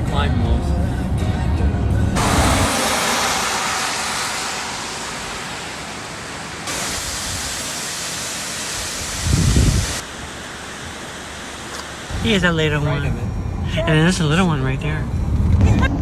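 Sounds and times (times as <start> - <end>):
waterfall rushing: 2.2 - 12.4.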